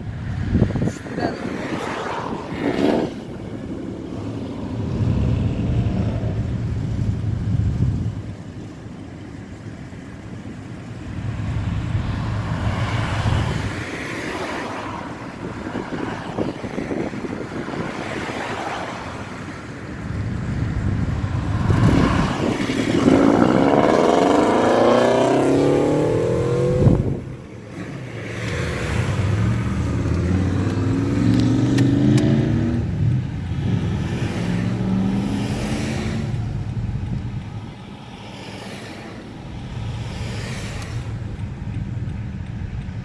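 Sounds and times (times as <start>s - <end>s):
car engine revving: 21.2s - 37.1s.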